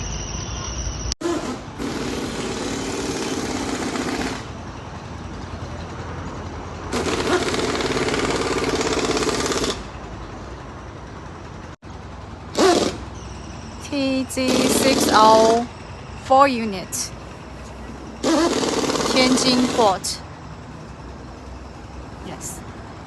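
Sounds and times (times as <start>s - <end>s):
low machinery rumble: 0.0s - 23.0s
rapid mechanical hammering: 1.2s - 4.6s, 6.9s - 9.9s, 18.2s - 20.1s.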